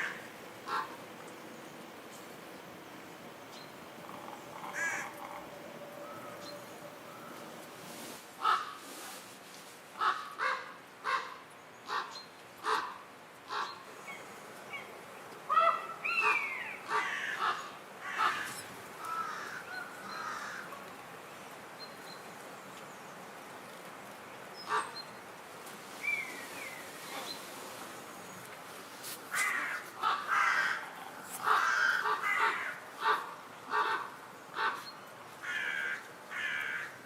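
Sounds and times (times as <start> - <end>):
crows cawing: 0.0 - 1.0, 4.1 - 6.5, 15.6 - 20.7, 29.3 - 34.8, 35.4 - 37.0.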